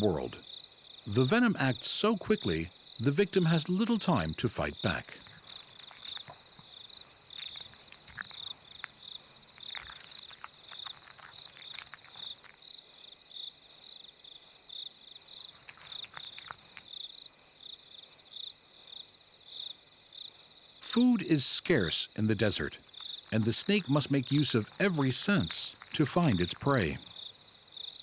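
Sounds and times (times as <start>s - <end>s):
crickets chirping: 0.0s - 28.0s
faint clicks and rustles: 4.9s - 12.7s, 15.4s - 17.0s, 22.8s - 27.5s.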